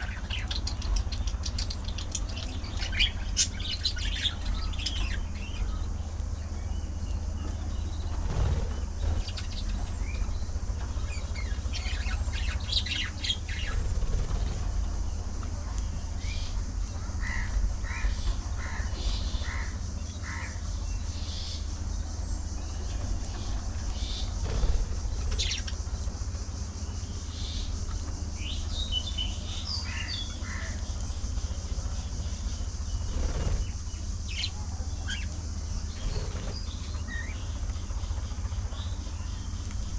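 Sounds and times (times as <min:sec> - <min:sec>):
budgerigars chirping and squawking: 0:00.0 - 0:05.8, 0:10.9 - 0:14.6, 0:17.2 - 0:21.6, 0:23.3 - 0:25.8, 0:28.4 - 0:39.0
steady low hum: 0:00.0 - 0:39.9.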